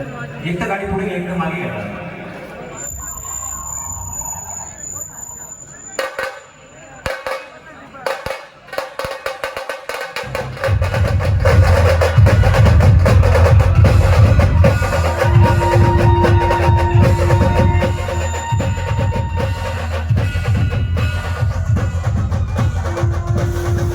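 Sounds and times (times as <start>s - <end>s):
sharp fast drum strokes: 6.0s - 23.9s
heavy bass drums: 10.2s - 23.9s
steady held tone: 13.3s - 23.9s.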